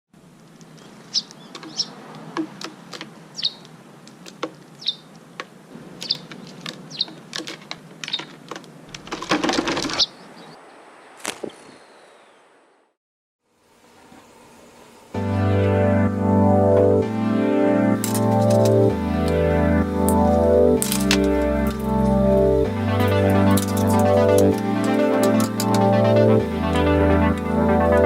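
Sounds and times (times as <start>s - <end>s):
small birds chirping: 0.4s - 8.9s, 9.8s - 12.6s.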